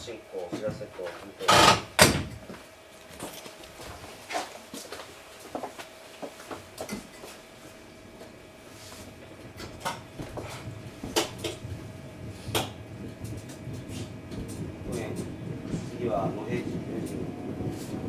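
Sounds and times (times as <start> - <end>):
low running rumble: 7.4 - 18.0.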